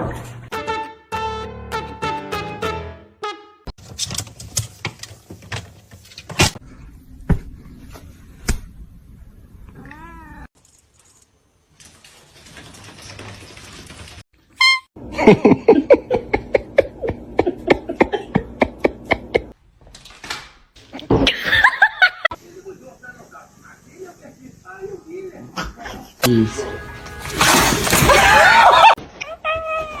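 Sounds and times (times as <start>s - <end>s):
cat meowing: 9.8s - 10.5s.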